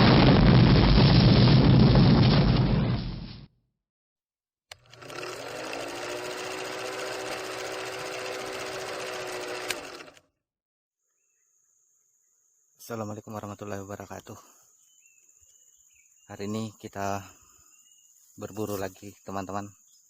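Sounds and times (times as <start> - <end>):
mechanical motor buzz: 4.7 - 10.3.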